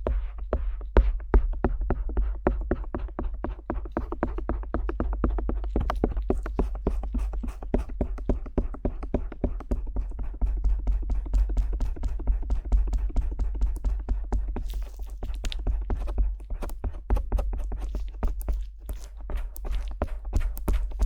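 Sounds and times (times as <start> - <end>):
metal ear pick tapping and scraping: 14.5 - 21.0.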